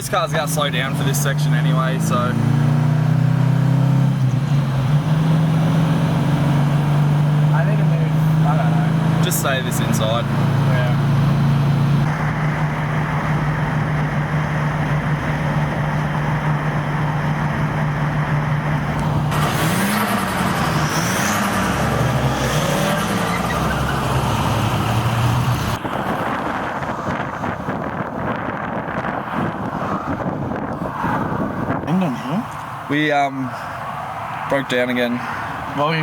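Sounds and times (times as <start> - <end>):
car engine and road noise: 0.0 - 36.0
wind noise: 25.1 - 32.3.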